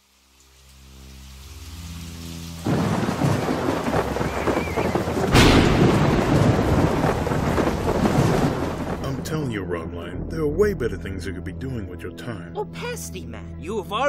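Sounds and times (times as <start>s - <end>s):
heavy rain: 0.0s - 9.6s
thunderclap: 2.6s - 10.1s.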